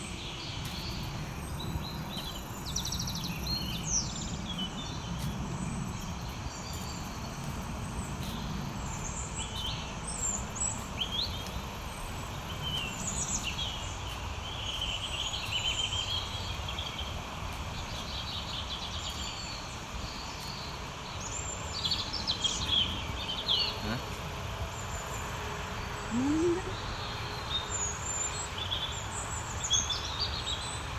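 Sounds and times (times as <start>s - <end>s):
birds chirping: 0.0s - 30.9s
birds warbling trills: 17.9s - 30.9s.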